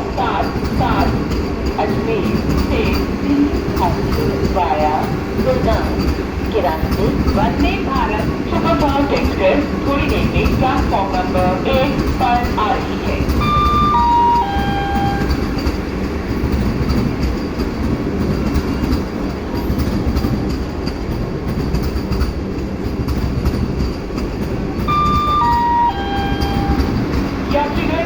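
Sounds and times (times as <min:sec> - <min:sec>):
electric train rumbling: 0:00.0 - 0:28.0
wheels clickety-clack: 0:00.0 - 0:28.0
three-note announcement chime: 0:13.4 - 0:15.3, 0:24.9 - 0:27.0.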